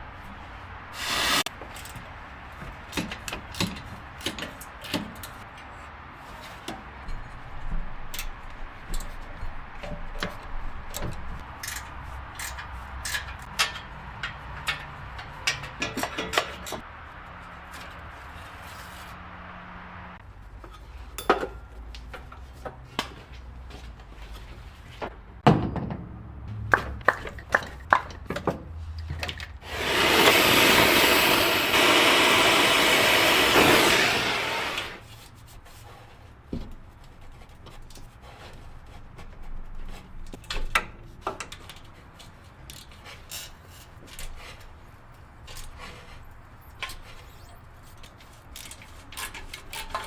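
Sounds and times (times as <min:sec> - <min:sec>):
loud steady hiss: 0:00.9 - 0:01.5, 0:29.6 - 0:35.0.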